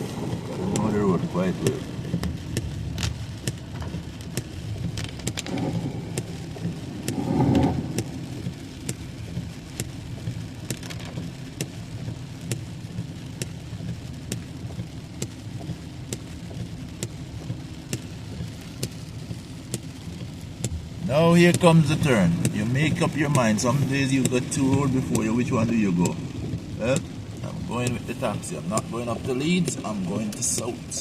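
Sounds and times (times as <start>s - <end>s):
car rumbling on wet road: 0.0s - 31.0s
heavy rain hitting a car: 0.0s - 31.0s.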